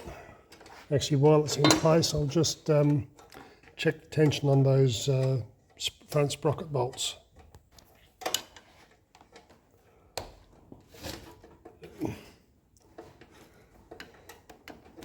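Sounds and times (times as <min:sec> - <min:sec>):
metallic clicks and knocks of tools: 0:01.5 - 0:09.6.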